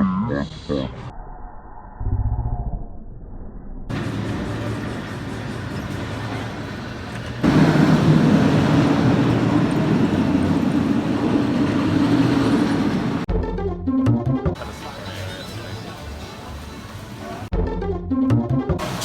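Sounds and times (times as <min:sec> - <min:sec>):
roller coaster train rumbling: 0:03.9 - 0:13.3, 0:14.6 - 0:17.5, 0:18.8 - 0:19.0
rush of wind: 0:03.9 - 0:13.3.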